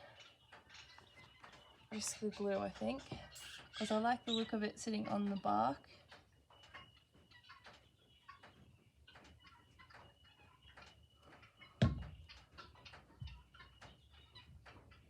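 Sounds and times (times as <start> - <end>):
heavy thump: 11.8 - 12.2
soft thud: 11.8 - 12.2.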